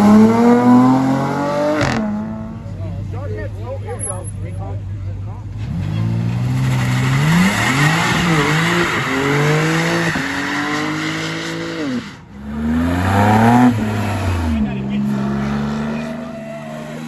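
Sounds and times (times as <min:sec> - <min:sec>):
car engine revving: 0:00.0 - 0:17.0
tires squealing and hissing: 0:05.4 - 0:17.0.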